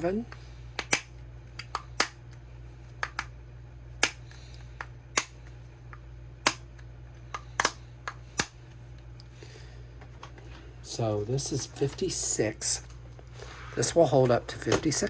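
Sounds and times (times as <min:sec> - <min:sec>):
plastic snap lids clicking: 0:07.3 - 0:07.8.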